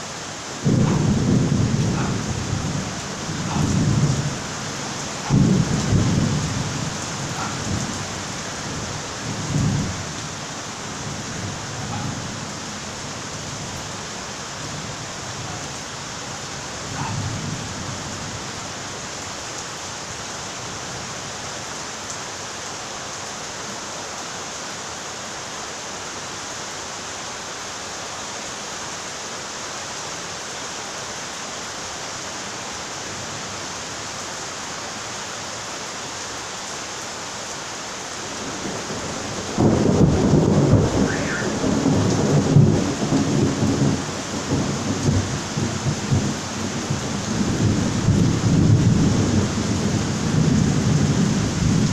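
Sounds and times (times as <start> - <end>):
steady rain: 0.0 - 51.9
thunder rumble: 0.6 - 10.3, 11.0 - 12.8, 38.4 - 51.9.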